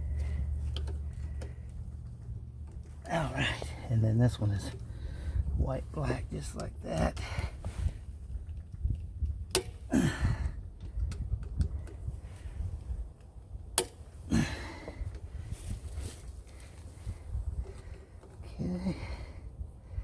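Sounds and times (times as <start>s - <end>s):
hand tools clicking and tapping: 0.0s - 3.8s, 13.8s - 14.0s
low rumble: 0.0s - 20.0s
person breathing: 4.8s - 5.6s, 14.3s - 20.0s.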